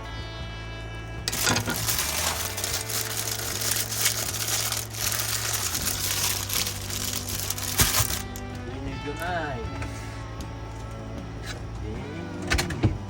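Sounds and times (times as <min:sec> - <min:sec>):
packaging crinkling and rustling: 0:01.3 - 0:08.4.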